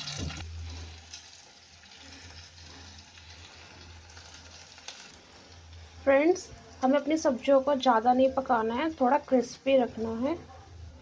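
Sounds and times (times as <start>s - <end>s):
vegetables sizzling in hot oil: 0.0s - 10.3s.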